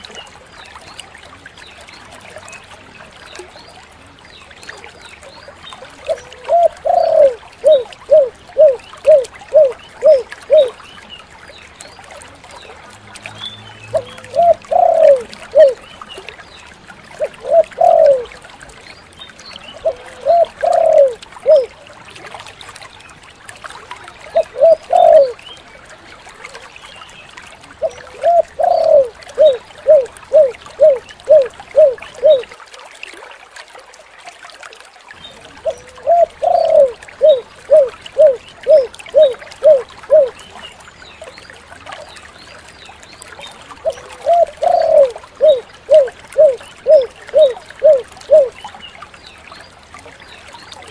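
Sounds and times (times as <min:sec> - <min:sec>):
dove cooing: 0:06.1 - 0:10.7, 0:13.9 - 0:15.8, 0:17.2 - 0:18.3, 0:19.8 - 0:21.7, 0:24.4 - 0:25.4, 0:27.8 - 0:32.5, 0:35.6 - 0:40.4, 0:43.8 - 0:48.6.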